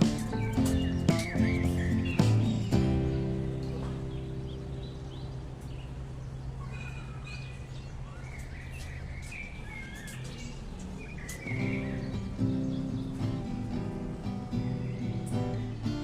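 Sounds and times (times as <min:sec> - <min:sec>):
low music chord: 0:00.0 - 0:05.7
guitar music: 0:00.0 - 0:06.4, 0:11.4 - 0:16.0
small birds chirping: 0:00.0 - 0:16.0.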